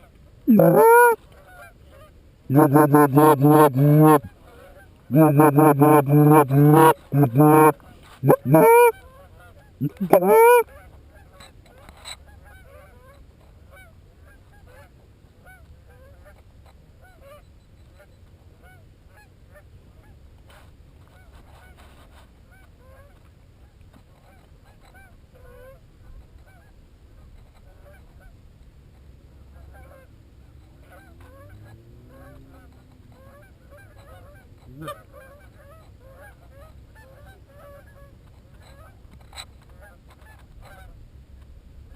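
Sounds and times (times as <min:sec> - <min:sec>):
geese honking: 0:00.5 - 0:01.2, 0:02.5 - 0:04.3, 0:05.1 - 0:08.9, 0:09.8 - 0:10.6.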